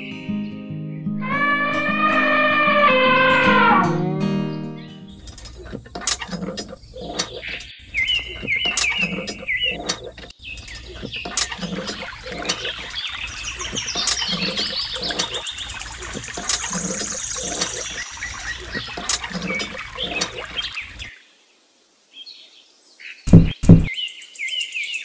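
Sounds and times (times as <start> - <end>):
birds chirping: 0.0 - 21.2
water trickling into pond: 5.1 - 21.4
hand pump lever strokes: 5.2 - 12.9, 13.6 - 21.1.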